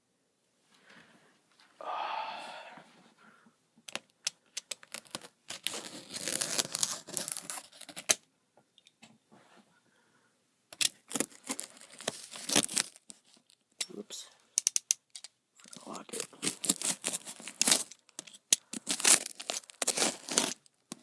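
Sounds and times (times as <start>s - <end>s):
tape and cardboard tearing: 3.9s - 8.2s, 10.8s - 13.3s, 16.2s - 21.0s.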